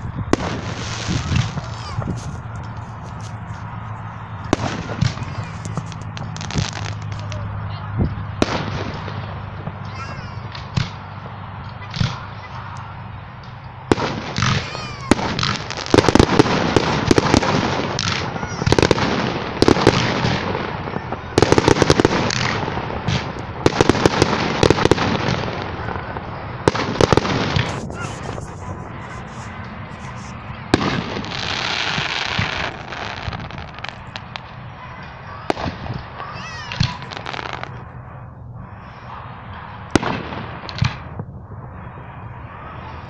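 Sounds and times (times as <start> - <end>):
fireworks booming: 0.0 - 12.5, 13.4 - 43.0
rapid bangs and crackling: 0.3 - 7.5, 13.4 - 34.7, 35.5 - 37.8.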